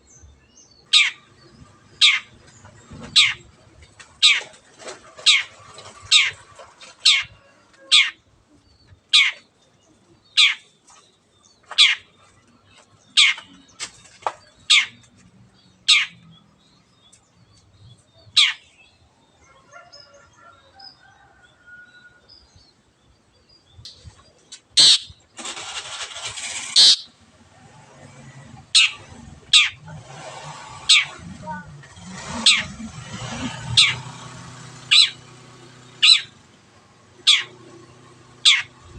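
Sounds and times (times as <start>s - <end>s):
bird sharp downward calls: 0.8s - 1.3s, 1.9s - 2.4s, 3.0s - 3.5s, 7.0s - 8.2s, 9.1s - 9.5s, 10.3s - 10.7s, 11.7s - 12.2s, 13.0s - 13.6s, 14.6s - 15.1s, 15.8s - 16.4s, 18.2s - 18.8s, 24.7s - 26.0s, 26.7s - 27.2s, 28.7s - 30.0s, 30.8s - 31.7s, 32.3s - 32.8s, 33.4s - 36.4s, 37.2s - 37.6s, 38.4s - 38.8s
bird harsh rasp: 3.0s - 3.5s, 4.2s - 7.3s, 13.2s - 13.5s, 24.8s - 27.2s, 28.7s - 34.2s, 34.9s - 35.2s, 36.0s - 36.3s, 37.3s - 37.6s, 38.4s - 38.8s.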